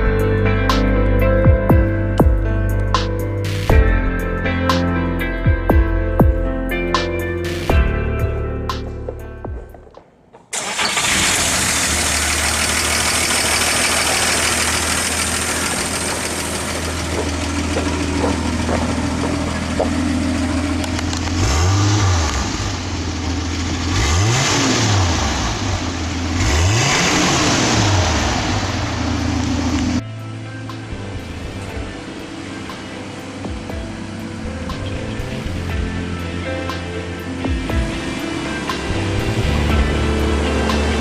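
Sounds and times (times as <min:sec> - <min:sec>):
car engine idling and revving: 0:00.0 - 0:41.0.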